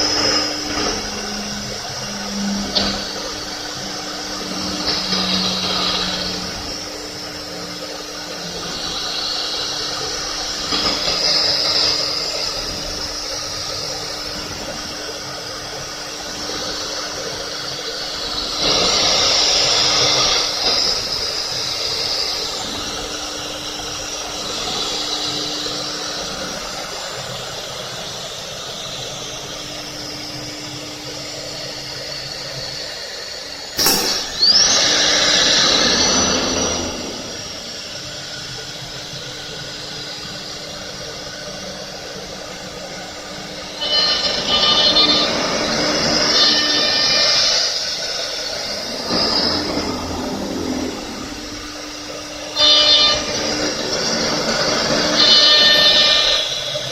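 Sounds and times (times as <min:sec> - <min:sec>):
hiss of wood cutting: 0:00.0 - 0:56.9
wood router spindle hum: 0:00.0 - 0:56.9
short loud burst: 0:33.8 - 0:35.3.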